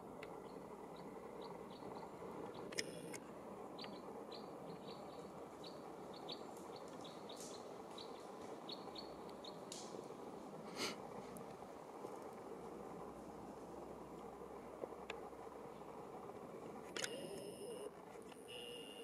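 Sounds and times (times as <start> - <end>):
faint forest hiss: 0.0 - 19.0
small birds chirping: 0.0 - 19.0
sharp click: 16.9 - 17.4.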